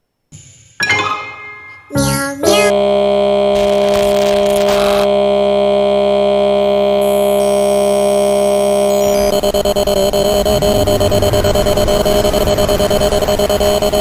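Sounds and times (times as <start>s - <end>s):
held synthesizer chord: 0.8s - 3.5s.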